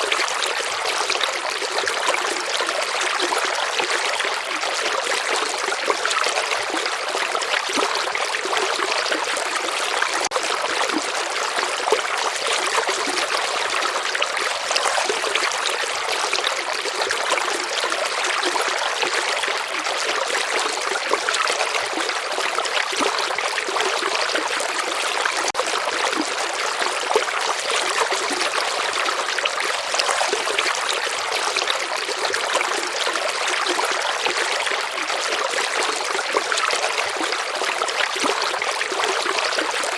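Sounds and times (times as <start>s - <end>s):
flowing stream water: 0.0s - 39.9s.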